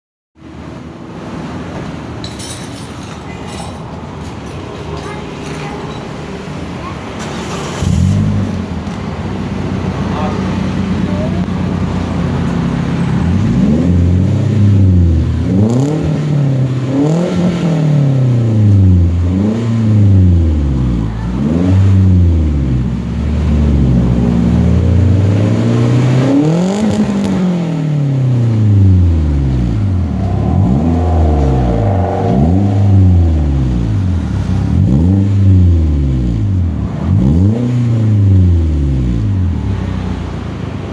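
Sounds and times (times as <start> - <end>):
car engine revving: 7.2 - 40.9.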